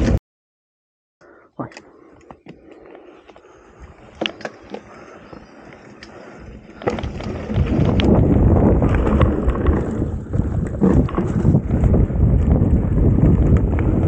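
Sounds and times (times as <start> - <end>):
wind buffeting microphone: 3.5 - 14.0
bike rattling over ground: 4.2 - 14.0.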